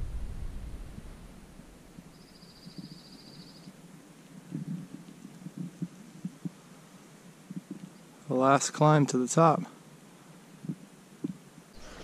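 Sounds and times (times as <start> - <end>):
songbird trilling: 2.1 - 3.8.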